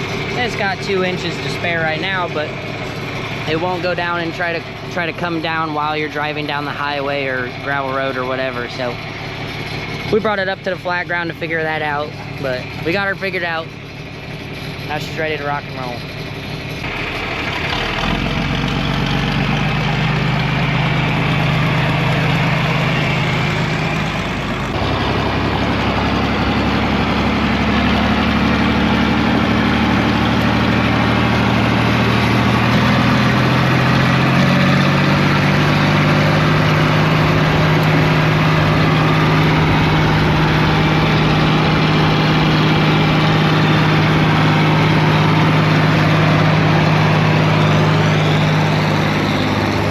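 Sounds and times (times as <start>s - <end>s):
tractor engine throttling up: 0.0s - 49.9s.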